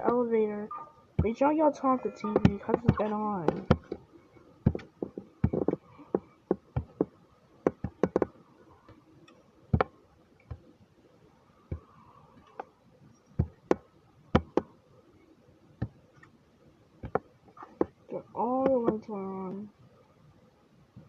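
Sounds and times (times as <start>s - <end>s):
plastic toys clicking and knocking: 4.6s - 8.4s.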